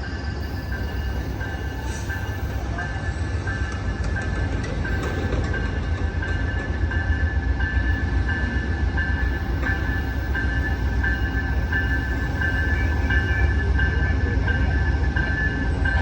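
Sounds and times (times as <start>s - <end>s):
train rolling with low rumble: 0.0s - 16.0s
bell ringing: 0.4s - 2.8s, 4.9s - 5.5s, 9.2s - 14.0s.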